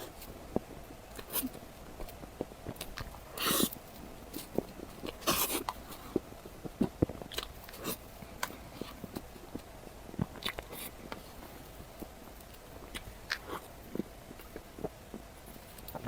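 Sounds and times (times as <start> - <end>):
biting and chewing: 0.0 - 16.0
wet mouth clicks: 2.7 - 3.8, 10.2 - 11.2, 12.9 - 14.6.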